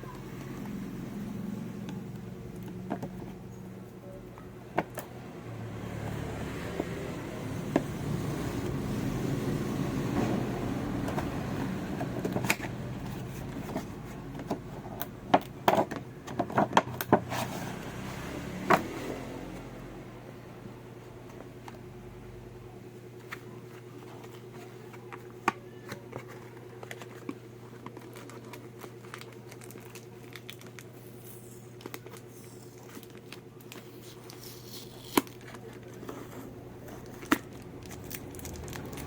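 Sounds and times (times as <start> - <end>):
steady low hum: 0.0 - 17.6, 19.2 - 39.0
packaging rustling: 23.2 - 39.0.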